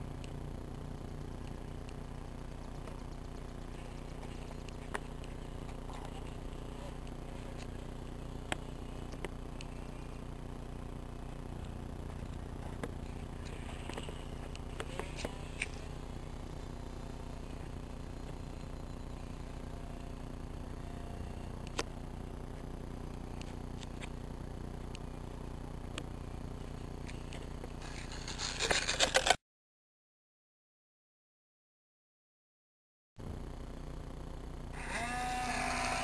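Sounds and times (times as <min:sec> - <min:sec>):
toy airplane motors droning: 0:02.6 - 0:22.2, 0:27.0 - 0:29.4, 0:34.7 - 0:36.0.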